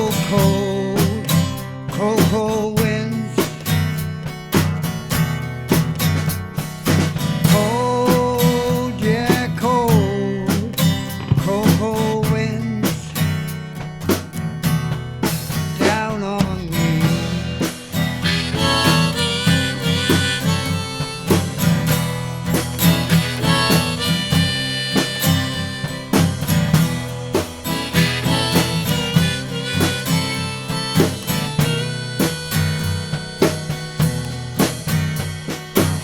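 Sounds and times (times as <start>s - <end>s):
drum kit: 0.0s - 36.0s
guitar: 0.0s - 36.0s
harmonica solo: 17.4s - 34.9s.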